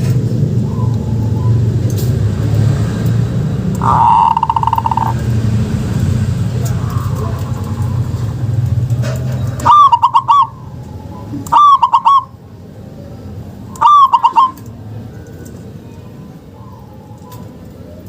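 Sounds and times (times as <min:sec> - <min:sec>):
dove cooing: 0:03.8 - 0:05.2, 0:09.5 - 0:12.4, 0:13.7 - 0:14.7.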